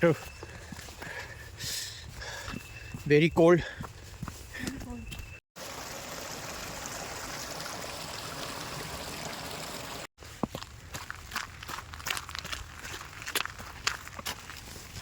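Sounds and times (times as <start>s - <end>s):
footsteps on a trail: 0.0s - 5.4s, 10.2s - 15.0s
stream water rushing: 5.6s - 10.1s.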